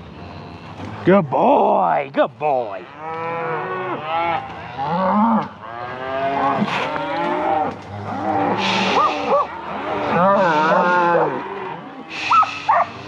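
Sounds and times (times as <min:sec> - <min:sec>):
cattle mooing and bawling: 0:02.7 - 0:13.0.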